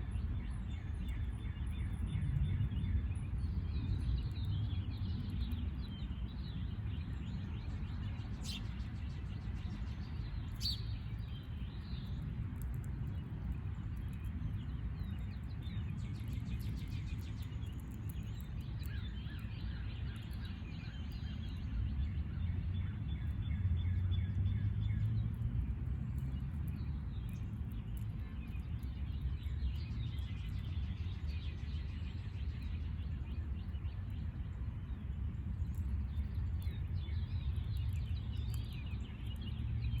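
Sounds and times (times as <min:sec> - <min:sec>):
small birds chirping: 0:00.1 - 0:40.0
steady low rumble: 0:21.0 - 0:40.0.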